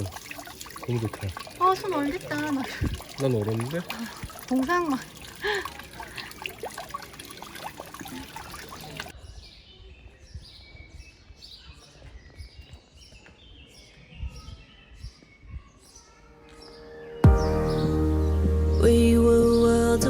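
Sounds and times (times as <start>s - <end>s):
running water splashing: 0.0s - 9.1s
small birds chirping: 0.0s - 20.0s.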